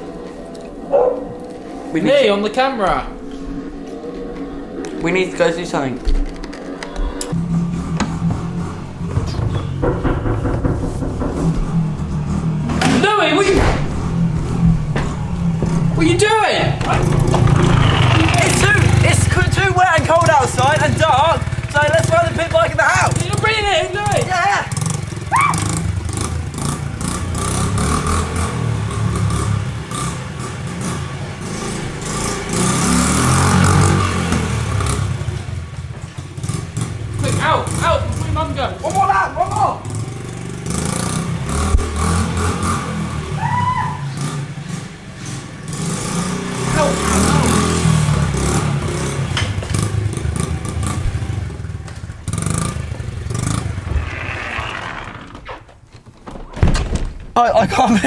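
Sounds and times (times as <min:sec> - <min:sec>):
clattering knocks: 0:06.1 - 0:39.2, 0:46.6 - 0:58.0
small motorcycle engine revving: 0:07.2 - 0:55.7.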